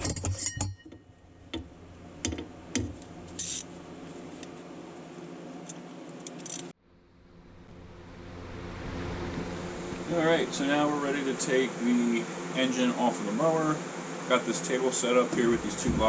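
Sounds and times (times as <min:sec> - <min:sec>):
metal tools clinking and rattling: 0:00.0 - 0:01.0
faint steady hum: 0:00.1 - 0:16.0.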